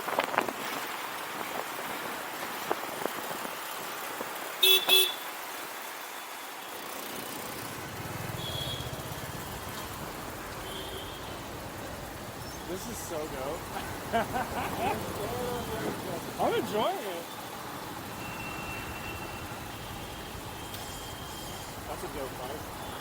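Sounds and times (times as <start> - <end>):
wind and road noise: 0.0 - 23.0
vehicle horn tooting: 4.6 - 5.2, 8.3 - 10.0, 10.6 - 11.5, 14.9 - 16.2, 18.1 - 21.8
faint distant horns: 7.7 - 23.0
low engine rumble: 7.7 - 23.0.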